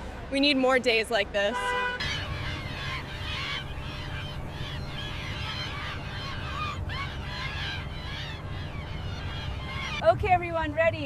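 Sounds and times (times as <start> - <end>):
low outdoor rumble: 0.0 - 11.0
birds calling: 2.0 - 10.1.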